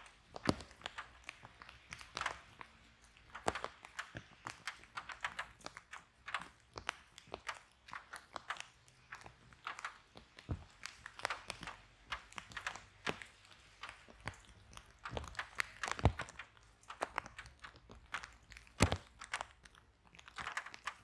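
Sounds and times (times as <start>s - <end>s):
wood fire crackling: 0.0s - 21.0s
loud wood snaps: 8.2s - 19.6s.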